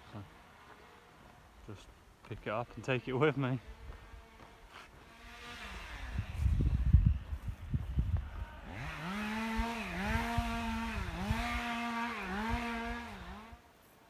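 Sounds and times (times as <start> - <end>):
small high-revving engine: 3.0 - 13.7.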